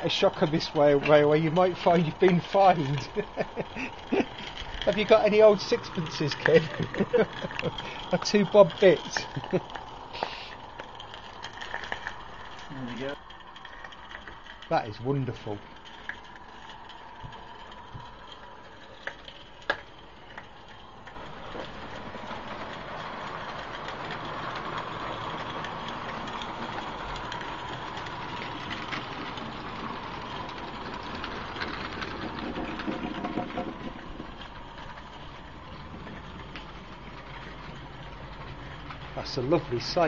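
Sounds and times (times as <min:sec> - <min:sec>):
steam locomotive running: 0:00.0 - 0:40.0.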